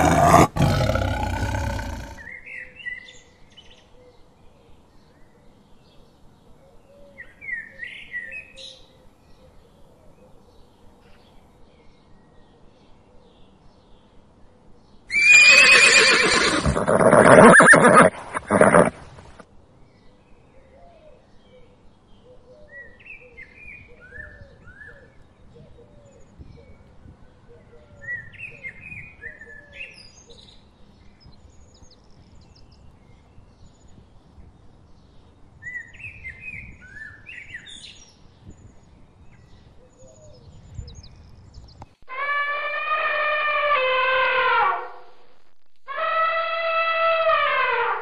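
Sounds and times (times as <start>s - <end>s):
elephant trumpeting: 0.0s - 2.2s, 15.2s - 19.1s, 42.1s - 45.1s, 45.9s - 48.0s
birds chirping and calling: 0.0s - 2.4s.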